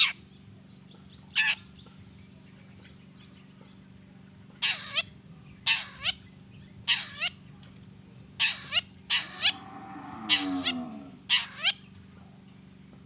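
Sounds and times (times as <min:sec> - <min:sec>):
bird harsh scratchy calls: 0:04.6 - 0:05.1, 0:05.7 - 0:06.2, 0:06.9 - 0:07.3, 0:08.4 - 0:09.6, 0:10.3 - 0:11.8
low drawn-out bird call: 0:08.4 - 0:11.9.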